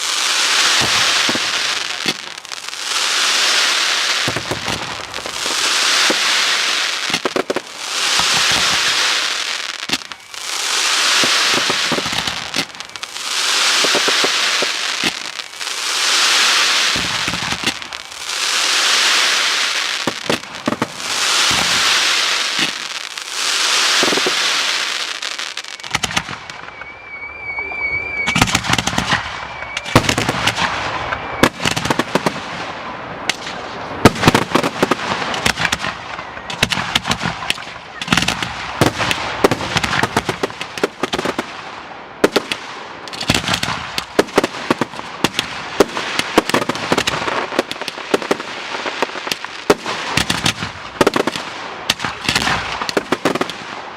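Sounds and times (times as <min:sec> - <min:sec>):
fireworks bangs: 0:00.0 - 0:53.9
fireworks crackling and hissing: 0:00.0 - 0:53.9
firework whistle warbling: 0:07.9 - 0:19.6, 0:23.5 - 0:31.8.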